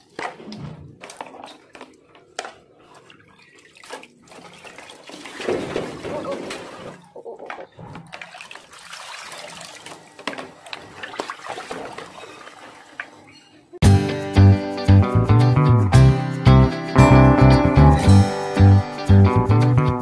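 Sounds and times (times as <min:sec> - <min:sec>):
water sloshing in plastic basin: 0:00.0 - 0:13.4.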